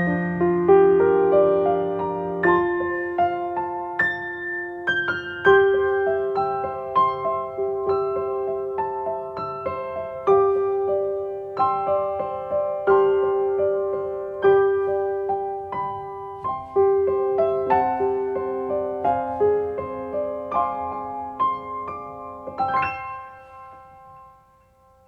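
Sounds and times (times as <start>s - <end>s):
gentle piano melody: 0.0s - 25.0s.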